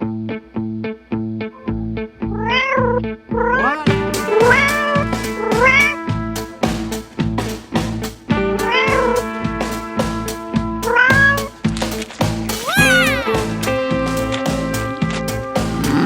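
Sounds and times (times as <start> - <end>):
background music with beat: 3.8 - 16.0
cat meowing: 12.6 - 13.8.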